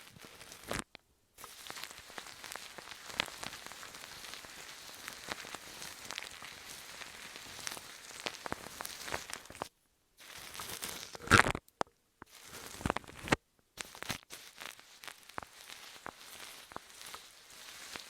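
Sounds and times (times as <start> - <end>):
crinkling and crackling: 0.0 - 18.0.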